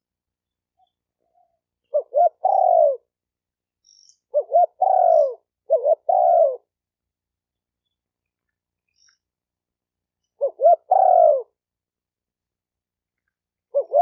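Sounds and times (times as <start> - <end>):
dove cooing: 1.2 - 3.1, 4.3 - 6.7, 10.4 - 11.6, 13.7 - 14.0.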